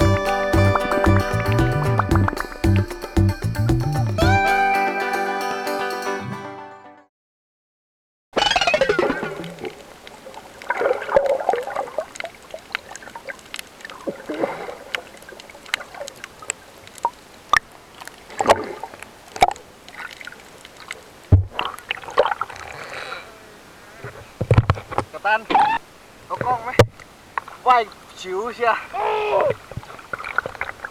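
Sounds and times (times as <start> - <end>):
water splashing and sloshing: 8.6 - 23.0, 29.3 - 30.9.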